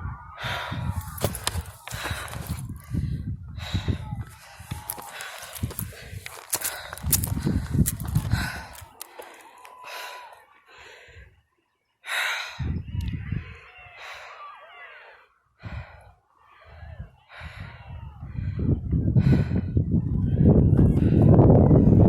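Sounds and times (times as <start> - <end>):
low rumbling on microphone: 0.0 - 8.8, 16.7 - 22.0
person panting hard: 0.3 - 11.4, 12.0 - 19.9.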